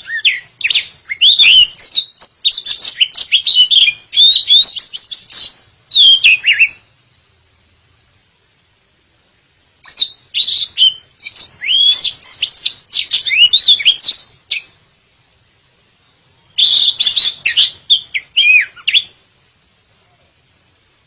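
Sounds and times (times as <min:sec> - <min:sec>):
bird singing whistles: 0:00.0 - 0:06.9, 0:09.8 - 0:14.9, 0:15.5 - 0:19.2.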